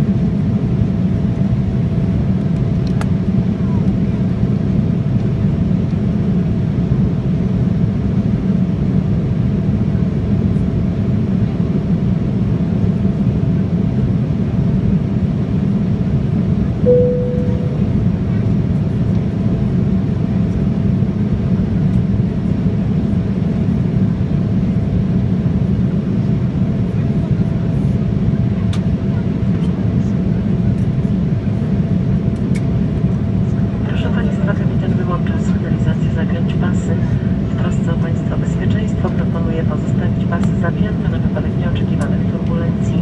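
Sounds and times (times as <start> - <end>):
turbofan engine hum and whine: 0.0 - 43.0
airflow rushing in aircraft cabin: 0.1 - 43.0
cabin chime: 16.9 - 17.8.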